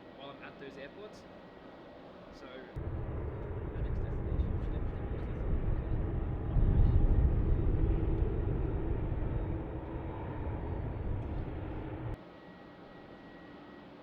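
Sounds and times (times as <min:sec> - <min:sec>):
jet engines rumbling: 0:02.8 - 0:12.2
faint steady hum: 0:02.8 - 0:14.0.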